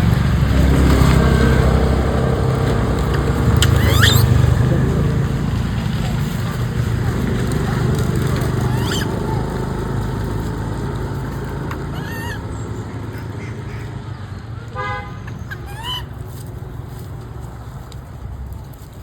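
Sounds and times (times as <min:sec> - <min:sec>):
low vehicle rumble: 0:00.0 - 0:19.0
high bending calls: 0:00.6 - 0:05.0, 0:08.5 - 0:09.5, 0:11.8 - 0:13.8.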